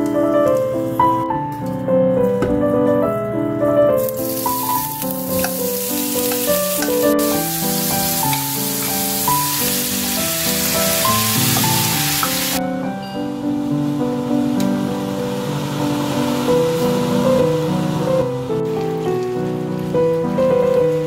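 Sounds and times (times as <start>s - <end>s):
piano waltz: 0.0s - 21.0s
chicken sizzling in hot oil: 4.0s - 12.6s.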